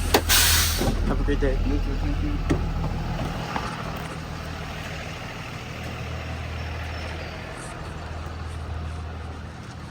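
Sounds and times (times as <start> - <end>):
bus engine idling: 0.0 - 9.9.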